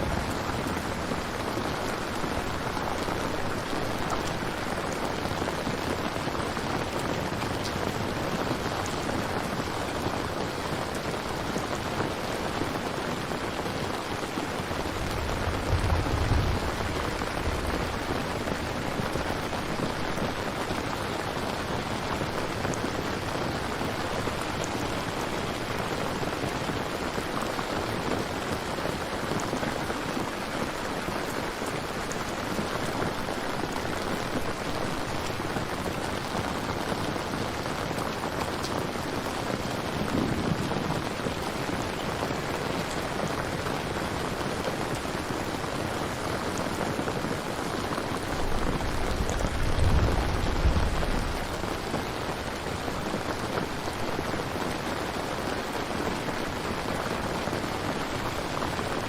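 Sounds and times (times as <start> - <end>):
low rumble of thunder: 0.0 - 4.2, 14.8 - 20.3, 39.9 - 41.6, 48.4 - 52.0
steady rain falling: 0.0 - 59.0.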